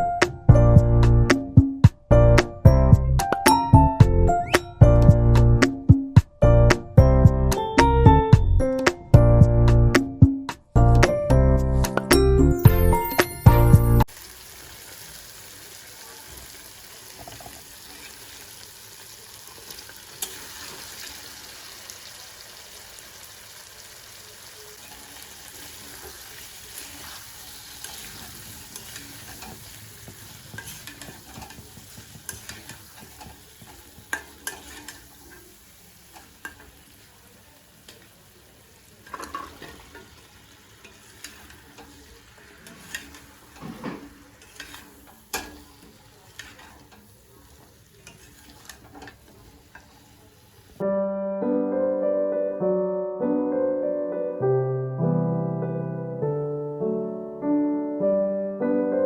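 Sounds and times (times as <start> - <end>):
food sizzling in a pan: 12.6 - 50.8
utensil stirring food: 14.1 - 50.8.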